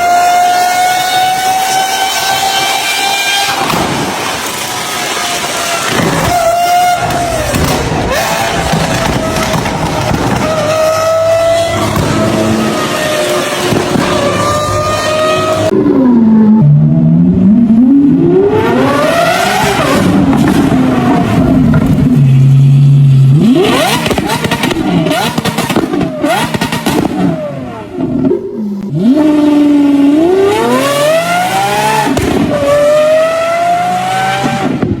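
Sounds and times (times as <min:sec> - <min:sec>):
car engine revving and accelerating: 0:00.0 - 0:35.0
exhaust crackling pops: 0:03.5 - 0:15.6, 0:23.8 - 0:27.3, 0:32.0 - 0:32.8.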